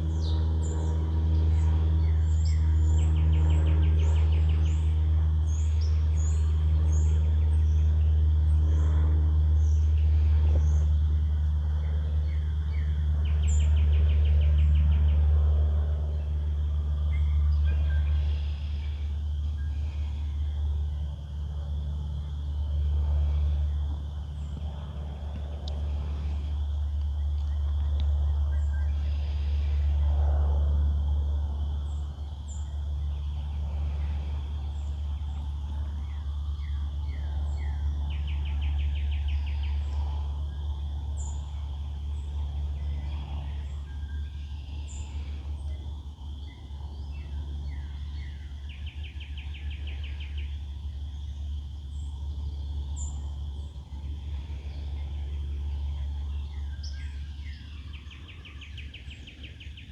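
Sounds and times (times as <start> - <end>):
low rumble: 0.0 - 59.5
birds singing: 0.0 - 59.9.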